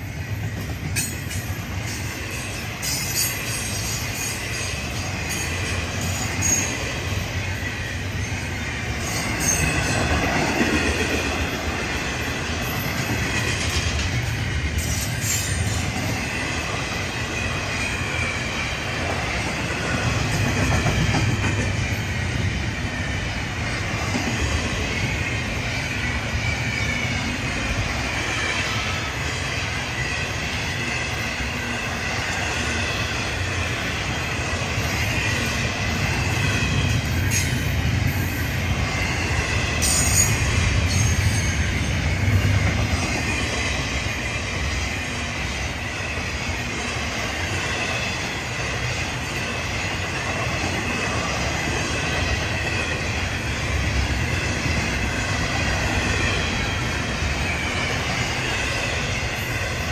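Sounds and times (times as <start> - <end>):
train wheels rumbling on rail: 0.0 - 59.9
high-pitched wheel squeal: 2.0 - 10.0.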